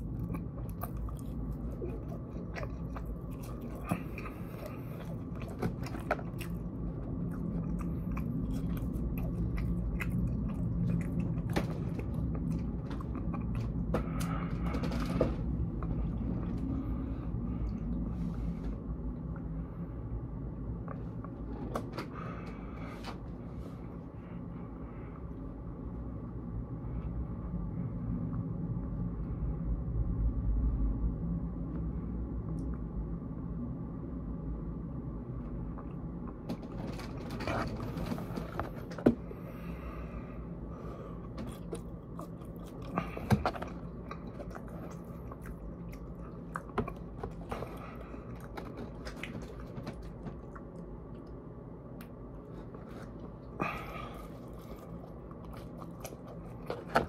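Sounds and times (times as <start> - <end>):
person chewing and crunching food: 0.0 - 18.6, 35.7 - 57.0
low rumble: 0.0 - 57.0.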